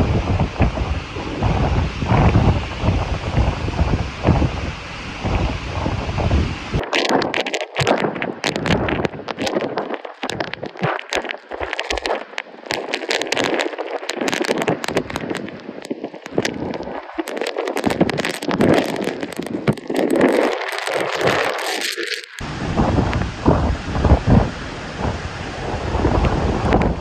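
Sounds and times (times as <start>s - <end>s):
strong wind and rain: 0.0s - 27.0s
crackling and rattling: 5.3s - 22.4s.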